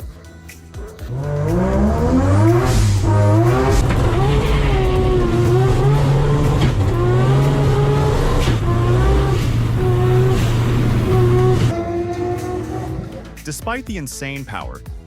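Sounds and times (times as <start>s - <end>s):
rotary engine revving: 1.1s - 13.4s.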